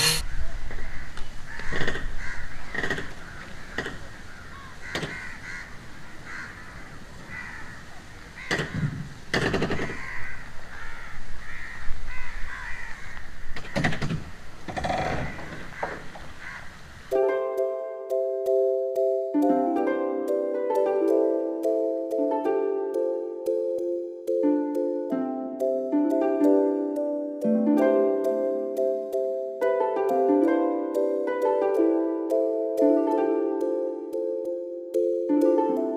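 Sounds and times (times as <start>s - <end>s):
crows cawing: 0.2s - 14.0s, 14.8s - 16.8s.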